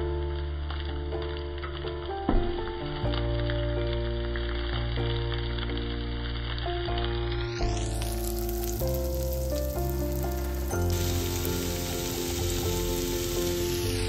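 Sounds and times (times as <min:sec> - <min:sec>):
background music with chords: 0:00.0 - 0:14.0
vegetables sizzling in oil: 0:05.3 - 0:14.0
spatula stir-frying: 0:08.0 - 0:14.0.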